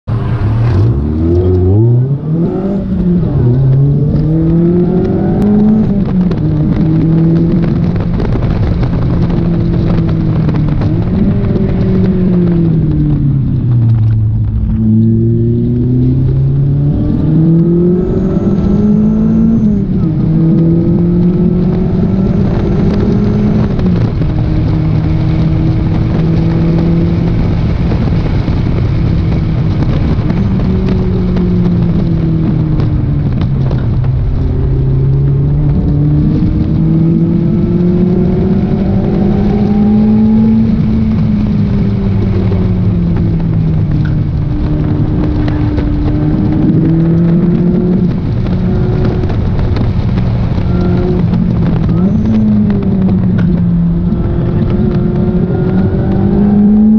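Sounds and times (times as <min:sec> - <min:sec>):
car engine revving: 0:00.0 - 0:56.9
road and wind noise: 0:00.0 - 0:56.9.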